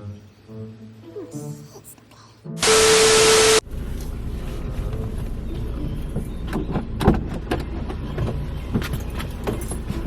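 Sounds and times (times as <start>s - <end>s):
static noise burst: 2.6s - 3.6s.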